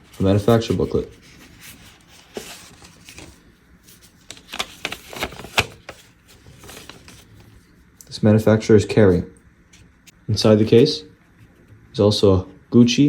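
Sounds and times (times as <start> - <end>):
packaging rustling and tapping: 4.2 - 7.4.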